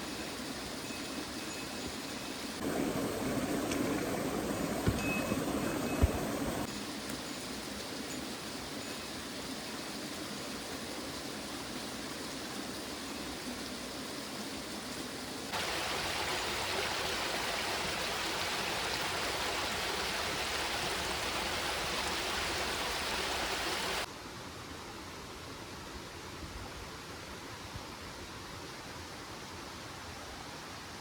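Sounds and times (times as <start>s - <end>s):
stream running: 0.0s - 24.1s.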